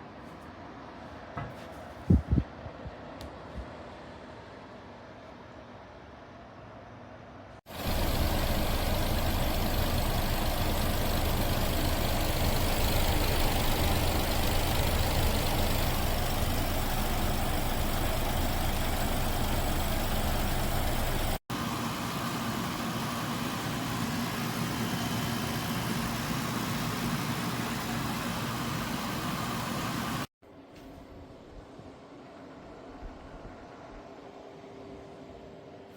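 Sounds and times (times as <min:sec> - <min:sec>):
air conditioner fan airflow: 0:00.0 - 0:35.9
low compressor hum: 0:07.7 - 0:30.2.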